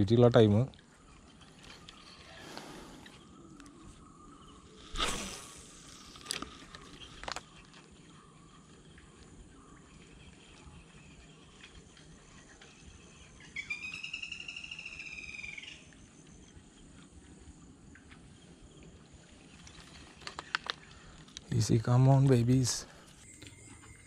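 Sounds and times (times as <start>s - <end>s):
faint outdoor background: 0.0s - 24.0s.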